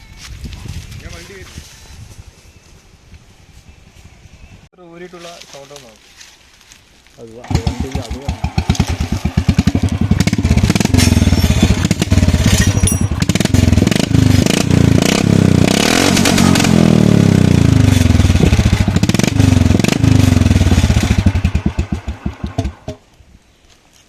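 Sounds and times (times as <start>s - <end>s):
motorcycle engine idling and revving: 7.2s - 23.1s.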